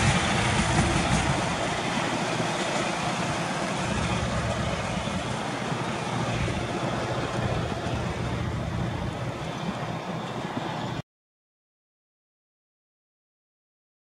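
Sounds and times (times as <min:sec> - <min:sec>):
train carriages rumbling and rattling: 0:00.0 - 0:11.0.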